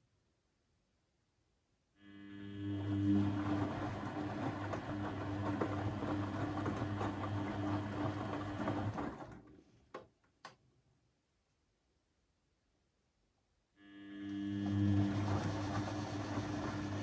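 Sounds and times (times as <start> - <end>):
washing machine running: 2.6 - 9.6, 14.4 - 17.0.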